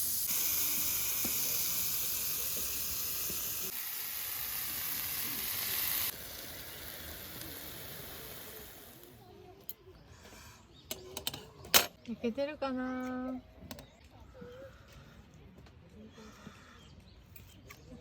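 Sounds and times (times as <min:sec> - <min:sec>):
meat sizzling on a griddle: 0:00.0 - 0:09.1.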